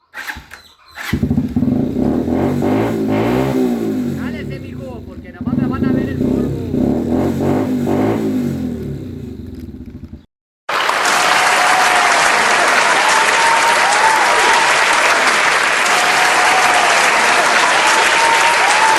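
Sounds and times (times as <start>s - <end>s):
motorcycle engine: 0.0s - 10.3s
crowd applause: 10.7s - 18.9s
crowd whistles: 10.8s - 18.9s.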